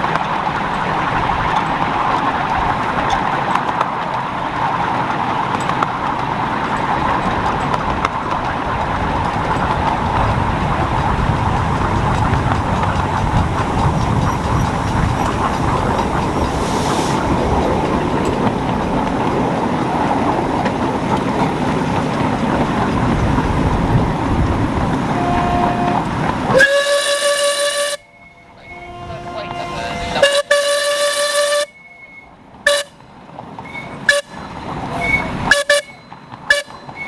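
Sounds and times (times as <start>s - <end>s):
miniature train wheels clattering: 0.0s - 28.6s, 30.0s - 37.0s
chime whistle: 28.0s - 29.2s, 31.7s - 32.3s.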